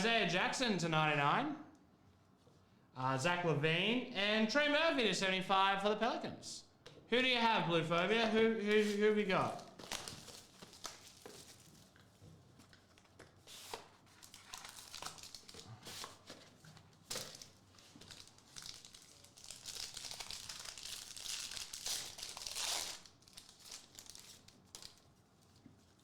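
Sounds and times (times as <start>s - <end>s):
cards being handled: 8.0s - 11.6s
plastic wrapper crinkling and tearing: 8.8s - 26.0s.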